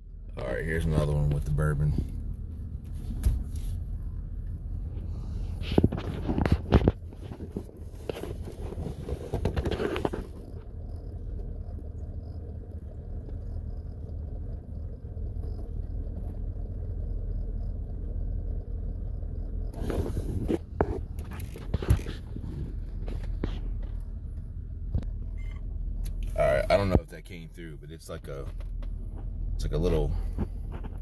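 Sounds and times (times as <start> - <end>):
engine idling: 0.0 - 31.0.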